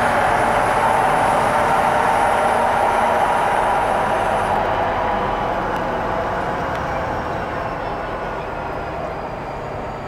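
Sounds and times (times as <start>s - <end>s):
train wheels rumbling on rail: 0.0s - 10.0s.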